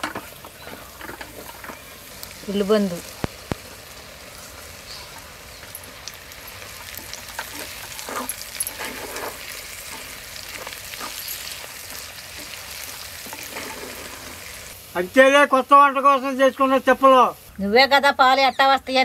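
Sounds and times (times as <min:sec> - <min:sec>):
onions sizzling in hot oil: 0:00.0 - 0:19.0
wooden spatula scraping pan: 0:07.3 - 0:14.6.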